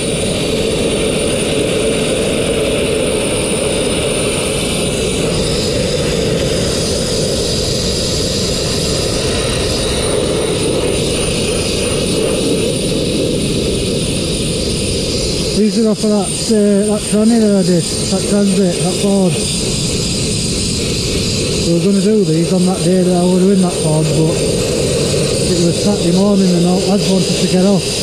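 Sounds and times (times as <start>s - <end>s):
sandblaster hissing: 15.1s - 28.0s.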